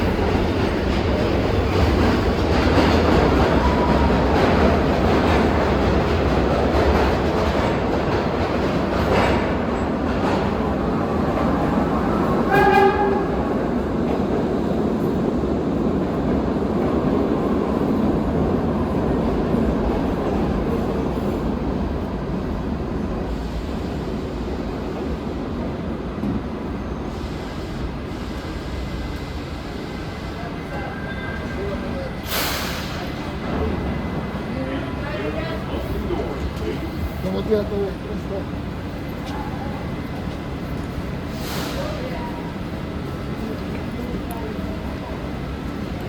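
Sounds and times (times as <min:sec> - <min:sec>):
subway car rumbling and rattling: 0:00.0 - 0:46.0.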